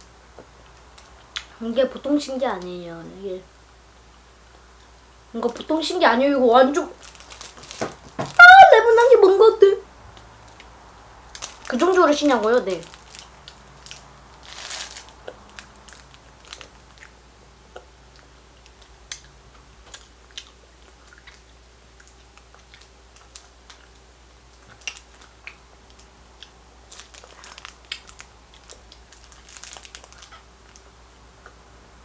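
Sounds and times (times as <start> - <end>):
plastic wrapper crinkling: 6.8 - 8.5, 11.3 - 17.2, 24.6 - 26.1, 26.8 - 30.9
chewing crunchy candy: 11.3 - 31.6.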